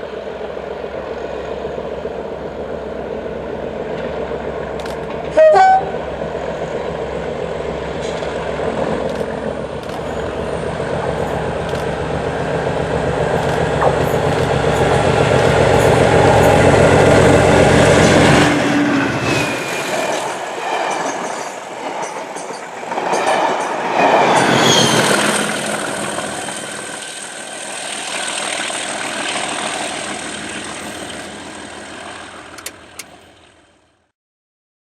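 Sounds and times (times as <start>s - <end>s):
train wheels rumbling: 0.0s - 33.5s
diesel locomotive engine rumbling: 0.0s - 33.8s
train wheels squealing: 13.5s - 27.0s.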